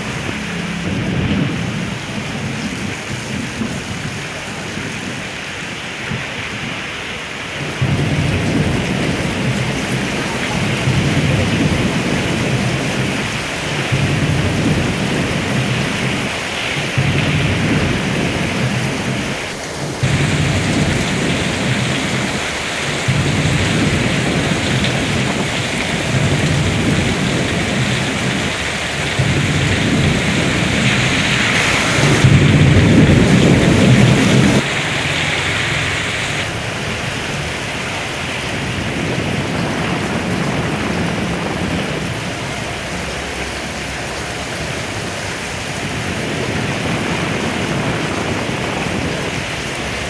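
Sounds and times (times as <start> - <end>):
heavy rain pouring: 0.0 - 50.0
low rumble: 20.0 - 34.6.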